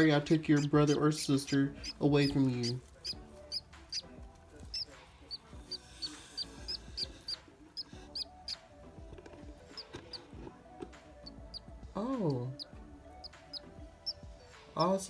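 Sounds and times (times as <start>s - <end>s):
budgerigar chick cheeping: 0.6s - 8.6s, 12.5s - 14.2s.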